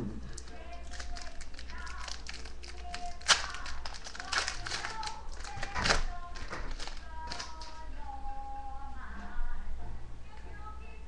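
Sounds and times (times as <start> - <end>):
card rustle: 0.4 - 7.9.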